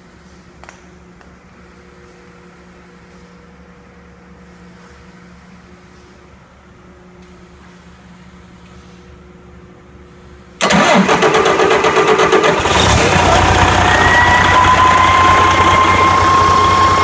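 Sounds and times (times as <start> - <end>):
diesel engine cranking and starting: 10.6 - 17.0.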